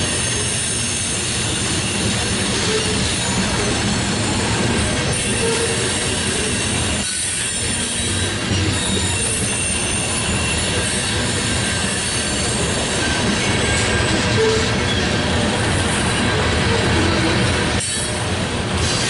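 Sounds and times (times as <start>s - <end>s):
freight train wheels rumbling: 0.0s - 19.0s
faint wheel squeal: 5.1s - 15.2s.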